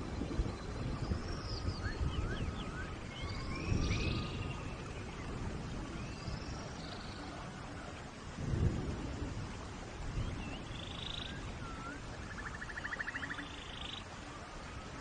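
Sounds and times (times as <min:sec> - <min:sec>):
distant thunder rumbles: 0:00.0 - 0:13.4
steady rain: 0:00.0 - 0:15.0
birds chirping: 0:10.2 - 0:14.1.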